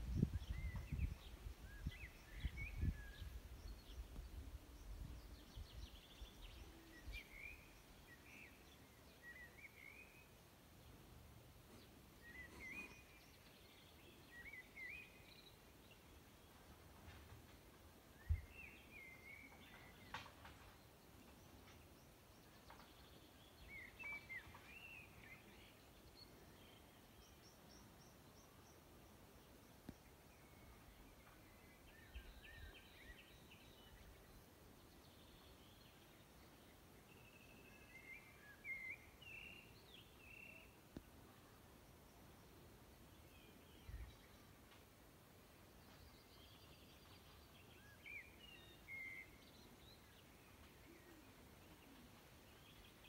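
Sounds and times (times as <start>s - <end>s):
faint birdsong: 0.0s - 53.0s.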